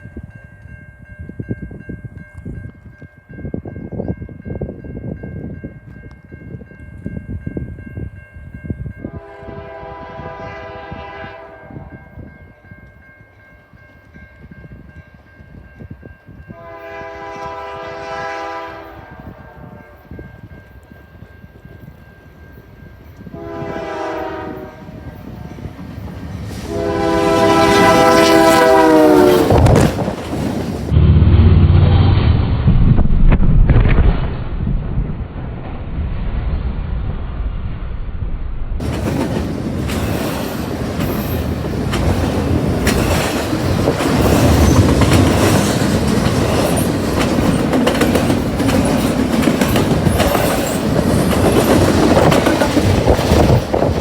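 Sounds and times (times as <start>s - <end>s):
train passing rumble: 0.0s - 54.0s
locomotive horn blasts: 9.1s - 12.1s, 16.5s - 20.2s, 23.3s - 25.5s, 26.6s - 29.9s.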